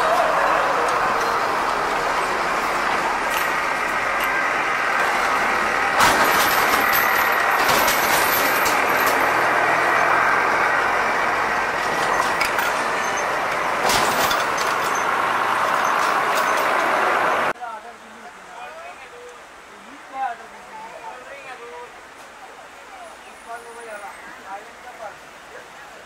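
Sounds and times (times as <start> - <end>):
train wheels rattling: 0.0 - 17.5
sharp clank: 6.0 - 9.4, 11.8 - 15.1.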